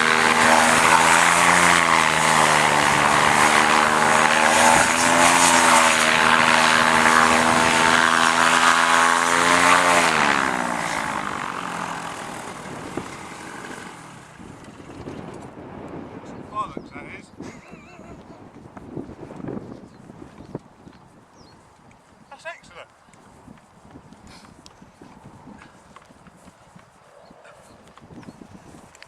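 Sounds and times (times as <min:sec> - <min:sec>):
paramotor engine and propeller: 0:00.0 - 0:29.0.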